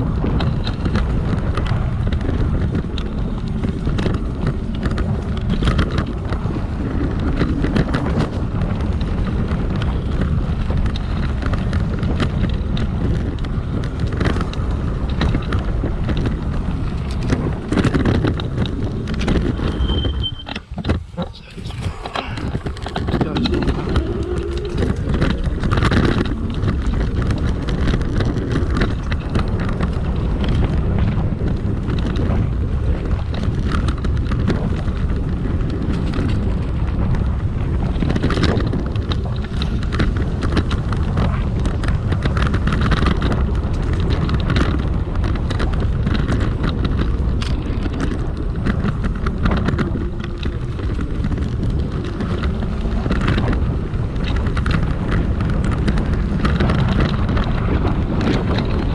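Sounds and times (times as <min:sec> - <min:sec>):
scooter rattling on rough ground: 0:00.0 - 0:58.9
wind buffeting microphone: 0:00.0 - 0:58.9.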